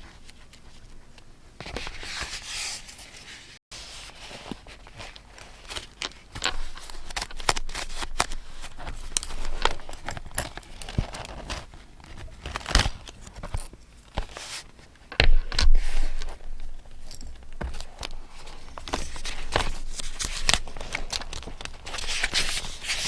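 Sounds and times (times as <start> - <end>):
paper crinkling and rustling: 1.6 - 23.0.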